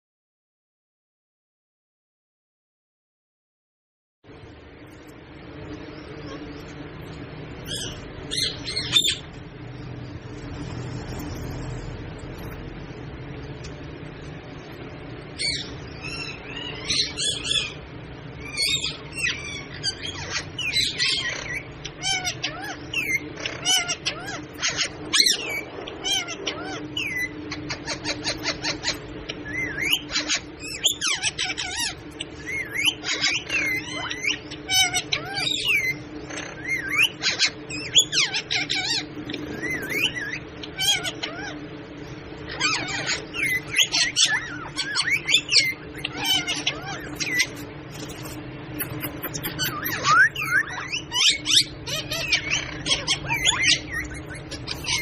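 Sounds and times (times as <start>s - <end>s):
low hum: 4.3s - 22.0s, 46.7s - 55.0s
parrot squawks and whistles: 18.4s - 41.6s, 42.5s - 55.0s.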